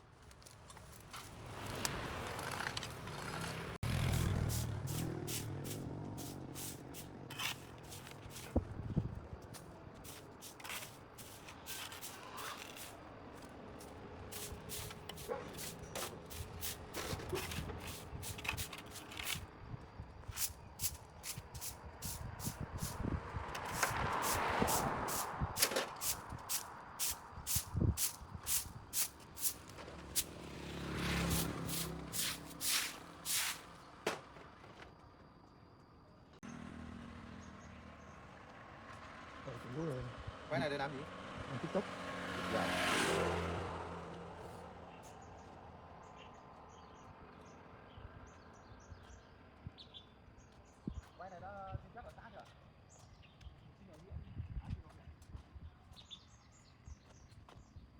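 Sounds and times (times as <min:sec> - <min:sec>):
scraping on pavement: 0:00.0 - 0:19.6, 0:20.2 - 0:35.1.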